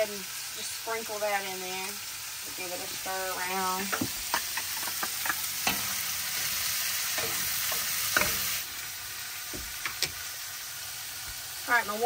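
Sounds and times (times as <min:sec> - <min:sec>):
shrimp sizzling in a pan: 0:00.0 - 0:12.0
utensil clicking against pan: 0:03.9 - 0:08.6, 0:09.6 - 0:10.2.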